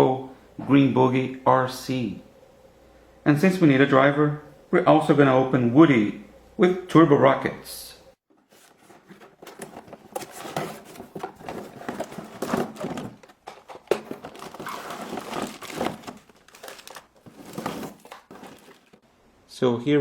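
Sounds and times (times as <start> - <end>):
plastic packaging crinkling: 8.4 - 19.0
plastic parts clicking and knocking: 8.9 - 19.0.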